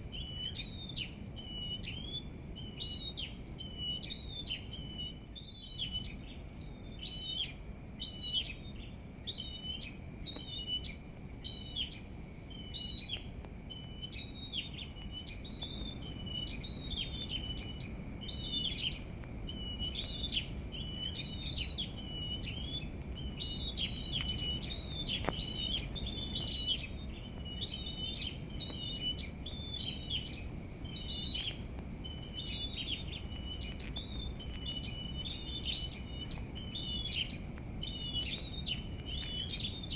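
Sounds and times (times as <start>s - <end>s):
low background rumble: 0.0s - 39.9s
songbirds chirping: 0.0s - 39.9s.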